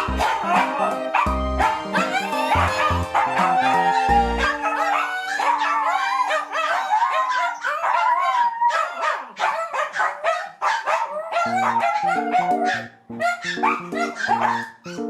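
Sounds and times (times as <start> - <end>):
background music: 0.0 - 6.7
puppies yipping and whining: 0.0 - 10.1, 10.9 - 15.0.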